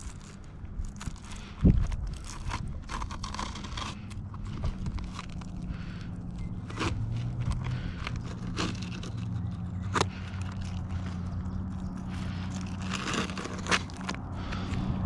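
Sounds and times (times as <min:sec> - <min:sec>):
shingles being scraped: 0:00.0 - 0:14.8
low machine hum: 0:00.0 - 0:15.0.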